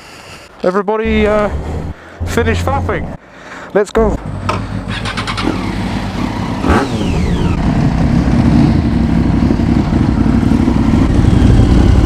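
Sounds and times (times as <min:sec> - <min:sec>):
motorcycle engine pulling away: 0:04.2 - 0:12.0.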